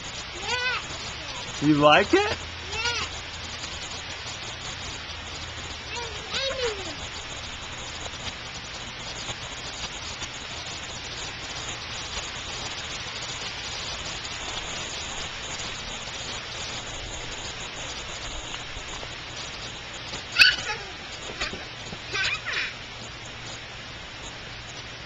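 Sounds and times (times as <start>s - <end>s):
rain falling: 0.0s - 25.0s
child crying out: 20.3s - 22.8s.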